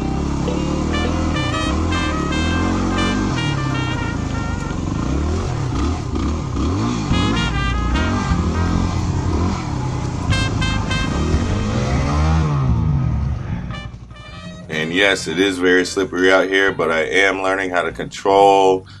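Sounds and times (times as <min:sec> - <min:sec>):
background music: 0:00.0 - 0:05.9, 0:06.7 - 0:18.8
motorcycle engine revving: 0:00.0 - 0:14.9.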